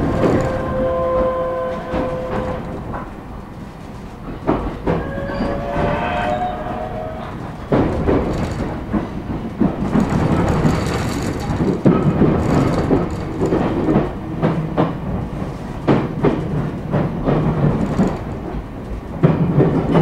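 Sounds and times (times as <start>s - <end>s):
train interior rumble: 0.0s - 20.0s
wheels knocking over rail joints: 7.6s - 15.0s.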